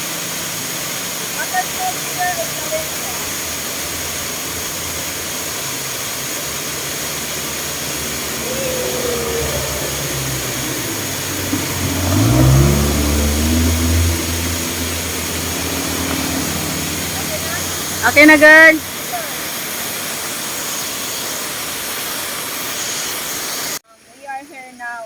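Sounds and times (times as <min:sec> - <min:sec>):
road and wind noise: 0:00.4 - 0:20.7
engine revving: 0:01.2 - 0:20.5.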